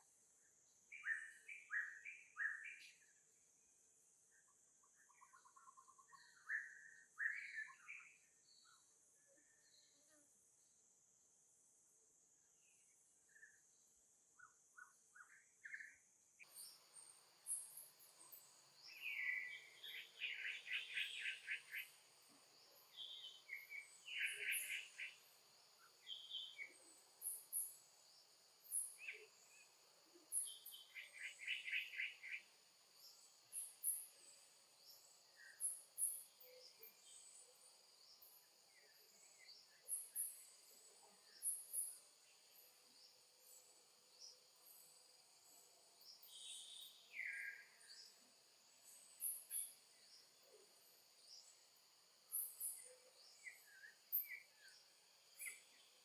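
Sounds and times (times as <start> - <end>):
birds chirping and trilling: 16.5 - 29.6, 30.3 - 32.4.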